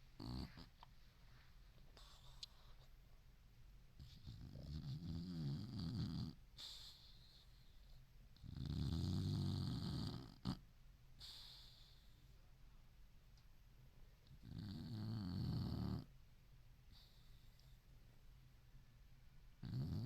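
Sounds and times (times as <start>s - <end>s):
dog snoring: 0.2s - 0.8s, 4.0s - 7.7s, 8.4s - 10.6s, 14.4s - 16.1s, 19.6s - 20.0s.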